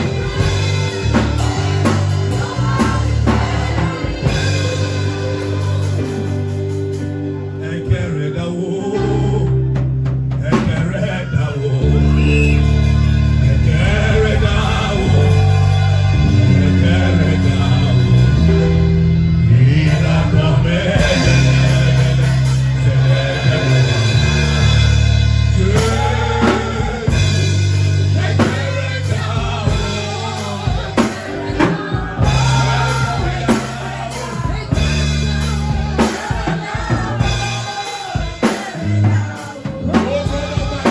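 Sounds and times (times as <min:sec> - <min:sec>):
drum kit: 0:00.0 - 0:40.9
gospel singing: 0:00.0 - 0:40.9
heavy sustained bass line: 0:00.0 - 0:40.9.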